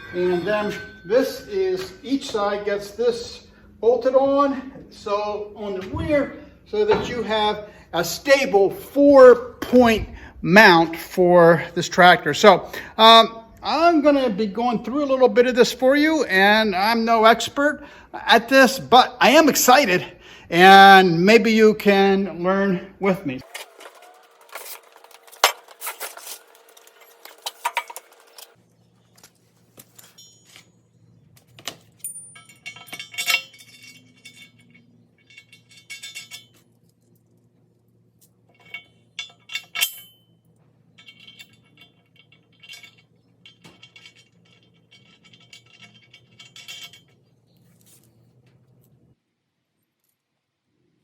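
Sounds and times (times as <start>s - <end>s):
metal tools clinking: 0.0s - 3.5s, 23.4s - 37.4s, 38.3s - 48.8s.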